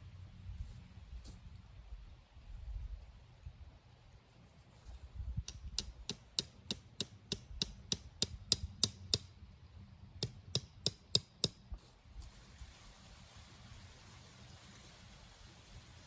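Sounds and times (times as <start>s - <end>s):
hammer striking tent peg: 5.5s - 9.3s, 10.2s - 11.6s.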